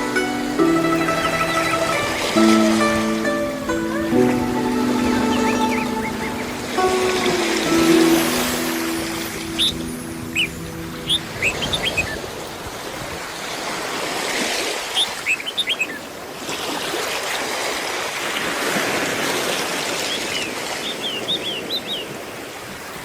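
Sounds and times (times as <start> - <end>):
waves washing on shore: 0.0 - 23.0
small birds chirping: 5.0 - 8.0, 9.2 - 14.0, 14.7 - 16.2, 19.9 - 23.0.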